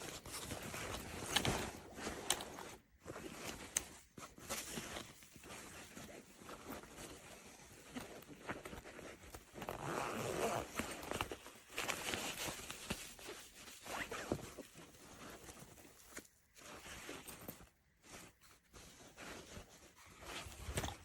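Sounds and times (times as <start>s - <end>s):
bag rustling and scraping: 0.0s - 21.0s
backpack zipper pulled: 9.6s - 11.0s.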